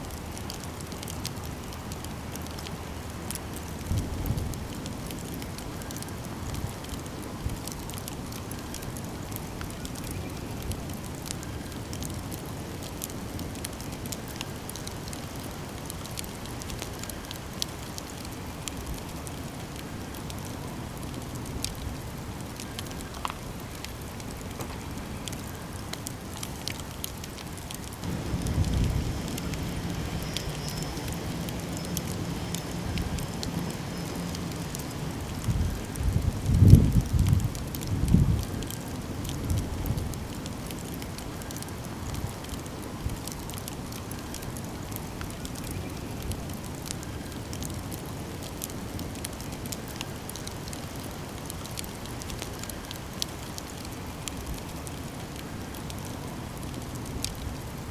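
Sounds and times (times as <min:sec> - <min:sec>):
campfire crackling and popping: 0:00.0 - 0:57.9.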